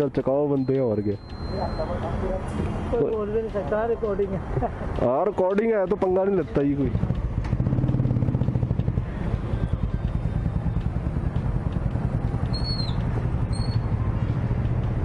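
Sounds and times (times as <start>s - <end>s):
small motorcycle engine idling: 7.0s - 14.3s
short high chirps: 12.5s - 13.9s.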